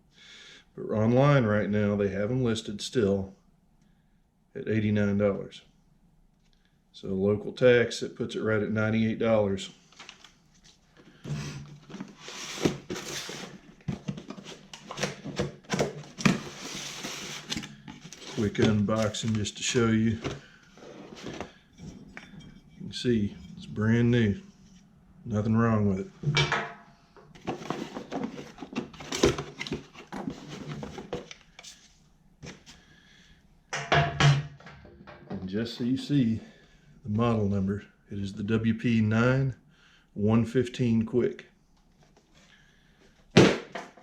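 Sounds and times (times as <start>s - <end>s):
packaging rustling: 11.7s - 21.6s.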